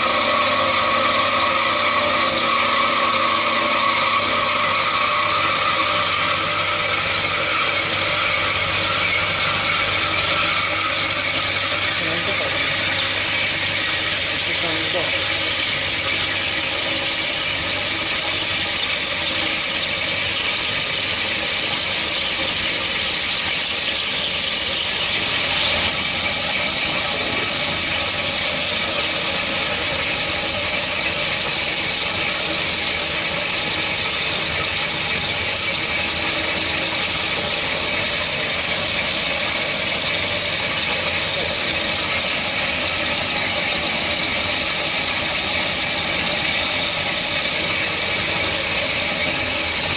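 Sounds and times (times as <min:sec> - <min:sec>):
band saw cutting metal: 0:00.0 - 0:49.9.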